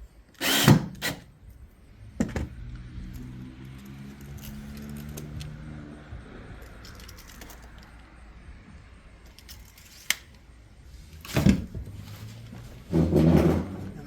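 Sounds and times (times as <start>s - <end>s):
tools clinking and rattling: 3.2s - 5.6s, 6.5s - 8.0s, 9.2s - 10.1s.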